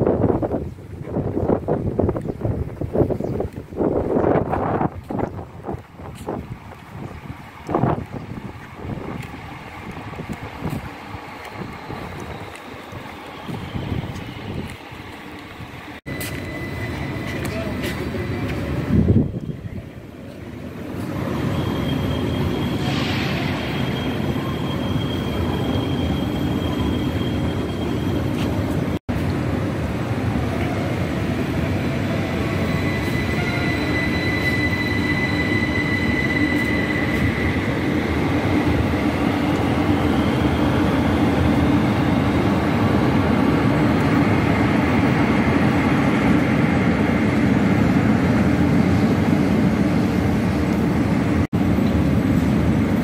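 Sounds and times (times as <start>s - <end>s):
train rumbling: 0.0s - 53.0s
high squealing tones: 21.2s - 28.8s, 32.0s - 42.1s.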